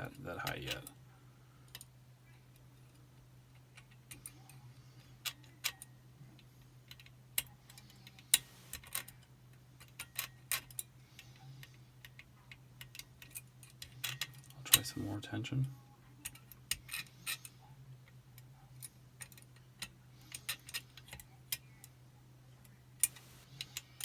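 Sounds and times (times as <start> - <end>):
steady low hum: 7.7 - 9.0, 23.0 - 23.9
lock picking metallic clicks: 23.0 - 23.8.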